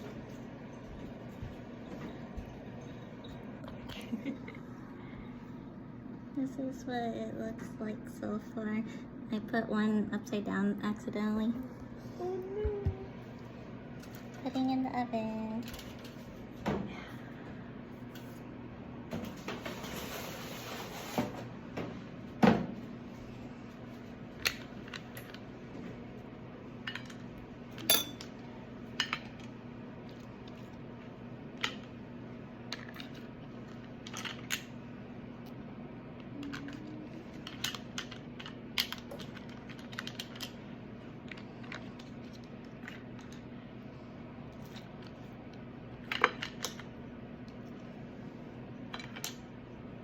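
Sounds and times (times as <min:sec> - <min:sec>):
steady low hum: 0:00.0 - 0:50.0
utensils and dishes clattering: 0:27.8 - 0:28.3.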